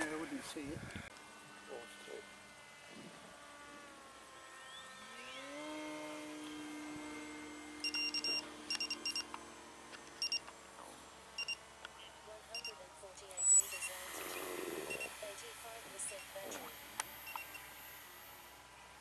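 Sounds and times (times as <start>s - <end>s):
electric motor whine: 0.0s - 19.0s
short electronic beeps: 7.8s - 9.3s, 10.2s - 10.4s, 11.4s - 11.6s, 12.5s - 12.8s, 13.4s - 14.2s, 14.9s - 15.2s.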